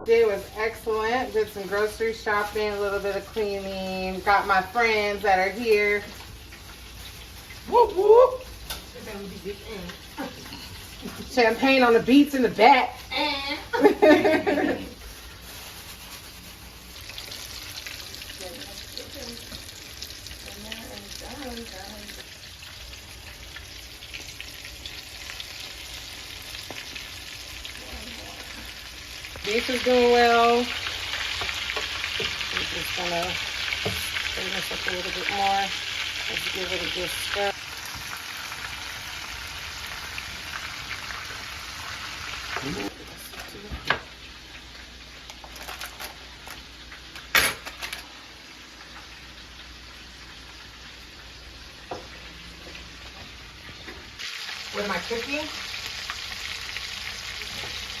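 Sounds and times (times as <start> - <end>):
meat sizzling in a pan: 0.0 - 58.0.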